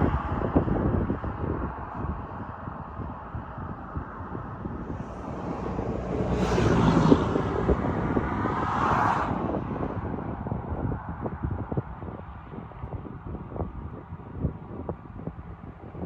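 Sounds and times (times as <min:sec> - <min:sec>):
wind on microphone: 0:00.0 - 0:16.0
vehicle passing by: 0:03.9 - 0:11.4.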